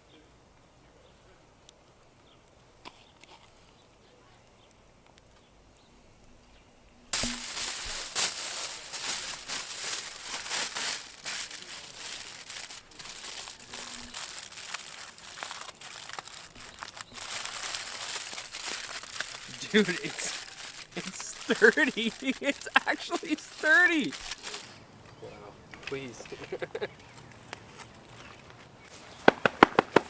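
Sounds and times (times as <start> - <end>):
dense crinkling and crackling: 7.2 - 24.8.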